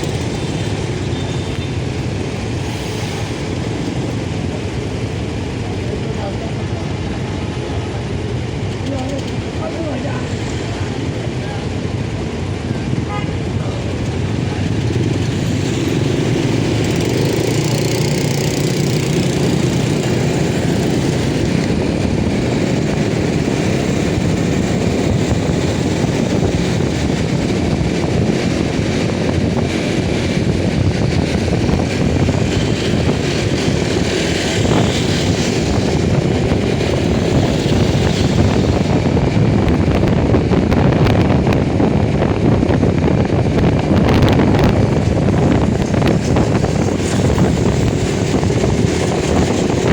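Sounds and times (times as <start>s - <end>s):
motorcycle engine droning: 12.8s - 49.9s.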